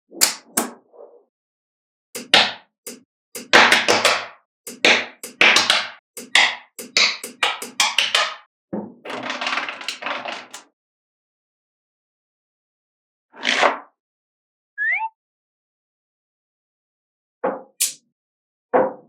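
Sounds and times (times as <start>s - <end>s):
magnetic balls clicking together: 2.2s - 8.3s.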